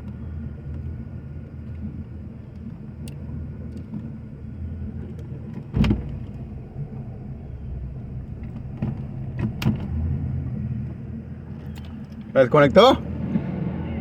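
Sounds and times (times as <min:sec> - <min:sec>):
engine idling: 0:00.0 - 0:13.2.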